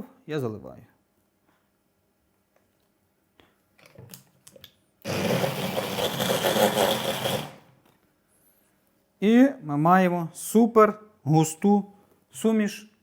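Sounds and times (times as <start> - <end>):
electric blender running: 5.0 - 7.7.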